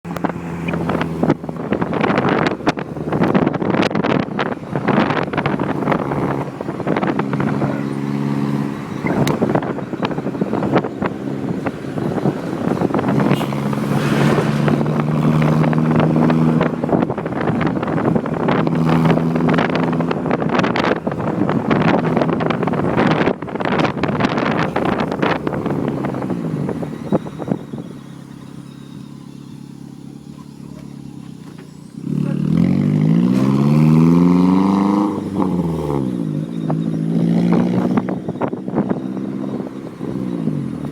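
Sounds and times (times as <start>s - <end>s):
vehicle engine running: 0.0s - 40.9s
wind buffeting microphone: 0.1s - 28.7s, 32.0s - 40.9s.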